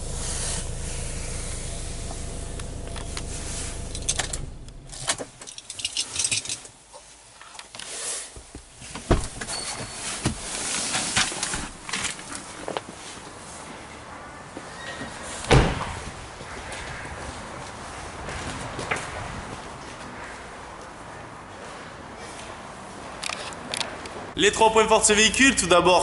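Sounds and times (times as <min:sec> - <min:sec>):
diesel engine idling: 0:00.0 - 0:05.1.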